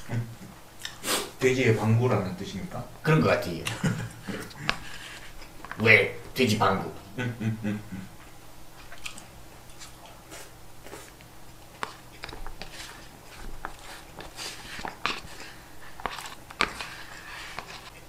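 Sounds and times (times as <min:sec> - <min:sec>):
person chewing food: 0:04.1 - 0:05.8, 0:08.2 - 0:18.0
chopsticks scraping and tapping bowl: 0:11.8 - 0:18.0.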